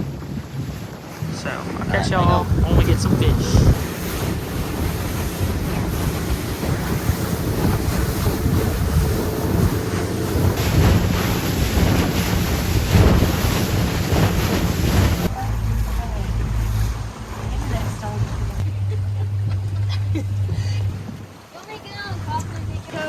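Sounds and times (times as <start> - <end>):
waves washing around boat: 0.0 - 23.0
wind buffeting microphone: 0.0 - 23.0.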